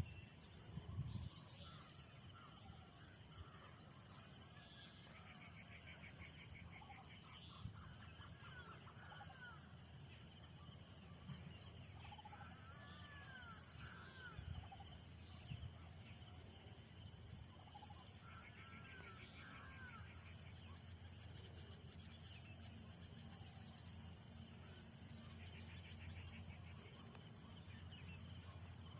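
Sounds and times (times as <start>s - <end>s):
birds chirping and trilling: 0.0s - 28.9s
low steady rumble: 6.8s - 28.9s.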